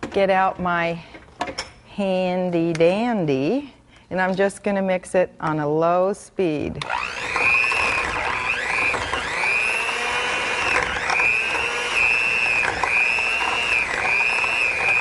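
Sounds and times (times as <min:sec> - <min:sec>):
electric mixer whining: 0:06.8 - 0:15.0.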